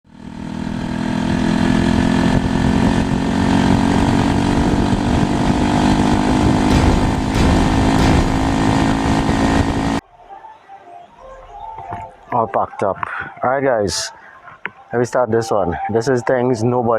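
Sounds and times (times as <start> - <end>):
motorcycle engine running: 0.1 - 10.0.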